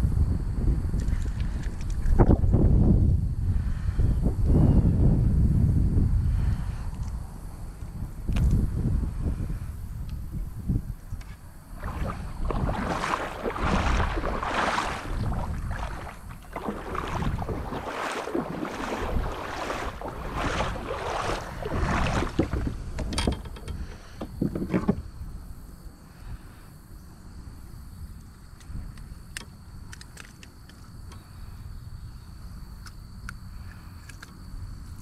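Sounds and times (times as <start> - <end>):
wind rumble on microphone: 0.0 - 35.0
paddle strokes splashing in water: 11.8 - 25.0.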